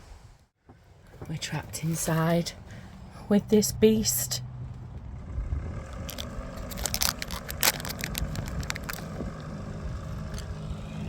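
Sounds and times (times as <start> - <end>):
boat engine drone: 1.6 - 11.0
plastic packet crinkling: 6.1 - 9.2.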